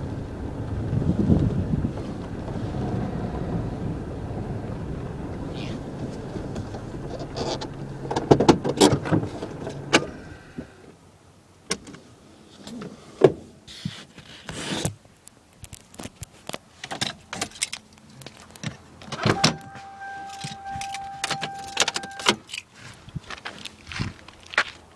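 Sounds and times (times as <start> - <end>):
low hum: 0.0 - 10.9
steady beep: 19.3 - 22.3
keys jangling: 20.2 - 22.7.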